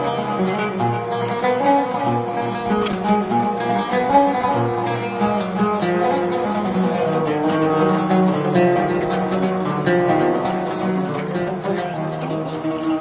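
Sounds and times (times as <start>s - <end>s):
plucked string instrument music: 0.0s - 13.0s.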